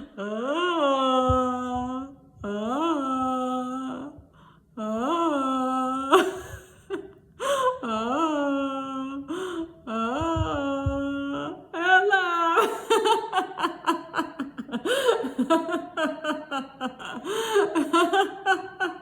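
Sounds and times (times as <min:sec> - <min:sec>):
woman holding a long tone: 0:04.8 - 0:19.0
woman laughing rapidly: 0:06.1 - 0:07.0, 0:12.6 - 0:19.0.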